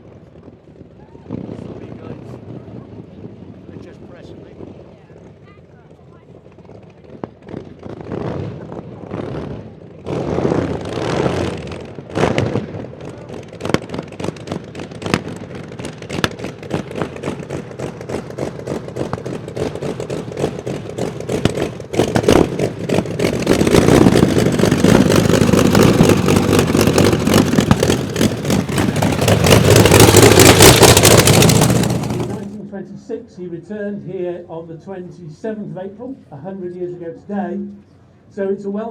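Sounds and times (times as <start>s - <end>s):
race car engine popping and revving: 7.3s - 32.6s.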